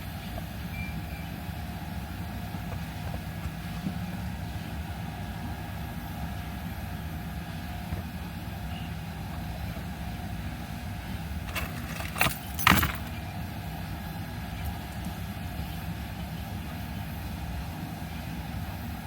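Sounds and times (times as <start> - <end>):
car engine running: 7.2 - 13.4.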